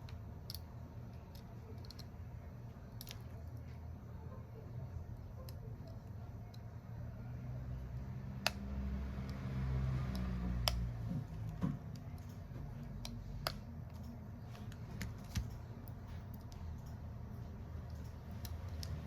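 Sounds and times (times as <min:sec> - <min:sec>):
low steady hum: 0:00.0 - 0:19.0
hand tools clicking and tapping: 0:08.4 - 0:19.0.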